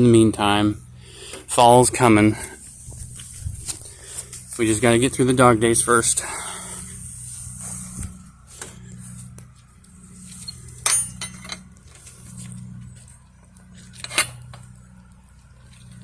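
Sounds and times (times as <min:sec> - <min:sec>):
steady low hum: 0:00.0 - 0:16.0
sharp metallic clinks: 0:10.4 - 0:11.7.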